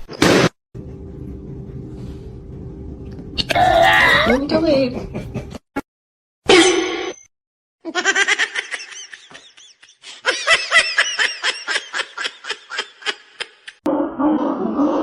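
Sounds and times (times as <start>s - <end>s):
person laughing hard: 7.9s - 13.8s.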